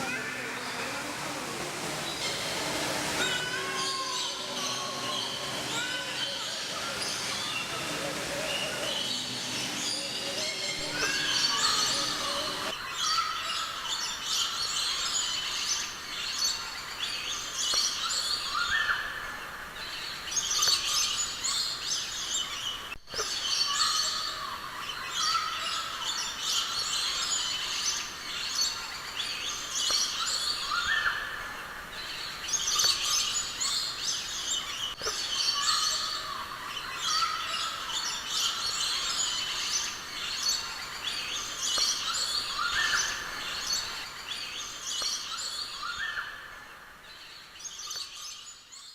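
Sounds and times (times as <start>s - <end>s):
faint voices murmuring: 0.0s - 12.8s
many birds chirping: 0.0s - 48.9s.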